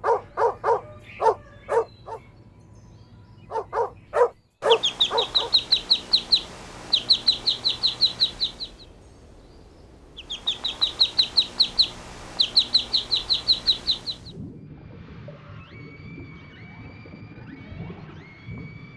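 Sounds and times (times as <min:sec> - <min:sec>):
dog bark: 0:00.0 - 0:02.2, 0:03.5 - 0:05.7
songbird chirping: 0:00.0 - 0:14.4.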